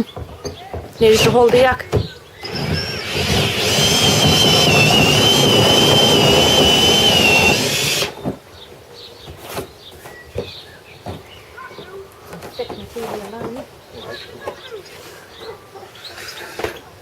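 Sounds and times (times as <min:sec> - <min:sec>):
power drill whine: 0:02.4 - 0:08.2.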